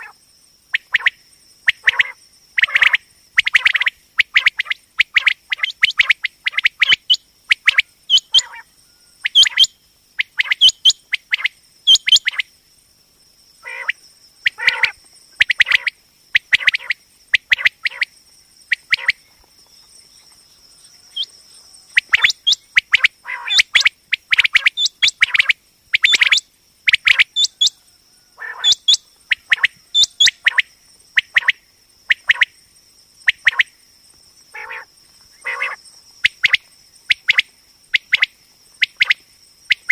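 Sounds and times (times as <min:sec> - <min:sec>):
quail calling: 0:01.7 - 0:12.4, 0:13.6 - 0:18.1, 0:18.7 - 0:19.2, 0:20.6 - 0:30.6, 0:34.5 - 0:37.4.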